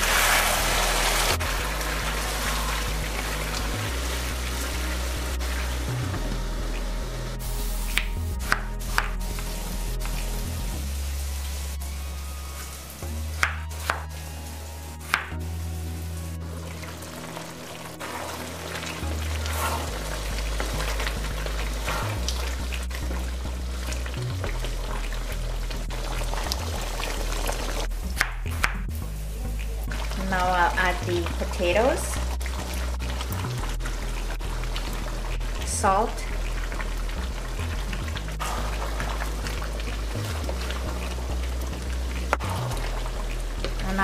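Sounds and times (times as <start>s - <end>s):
curry sizzling in frying pan: 0.0s - 28.3s, 29.9s - 44.0s
background music with bass line: 0.0s - 44.0s.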